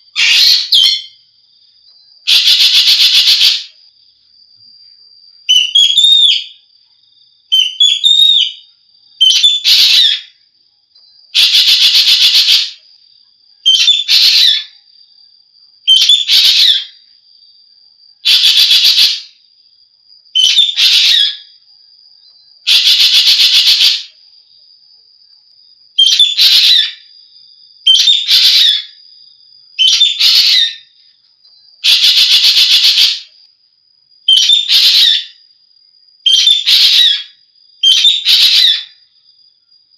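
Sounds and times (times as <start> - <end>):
starling calling: 0.0 - 1.2, 2.2 - 3.8, 5.5 - 6.6, 7.5 - 10.4, 11.3 - 12.8, 13.6 - 14.8, 15.9 - 17.0, 18.2 - 19.4, 20.4 - 21.6, 22.6 - 24.2, 26.0 - 27.1, 27.8 - 29.0, 29.8 - 30.9, 31.8 - 33.4, 34.3 - 35.4, 36.2 - 39.0.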